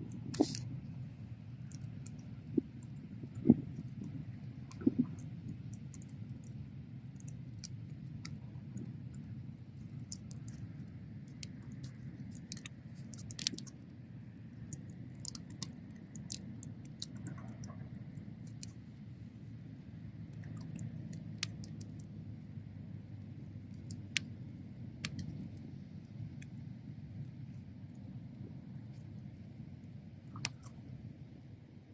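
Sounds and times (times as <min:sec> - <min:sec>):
fire crackles and pops: 0:00.0 - 0:22.5, 0:23.1 - 0:30.9
bonfire flame rumble: 0:17.9 - 0:31.9.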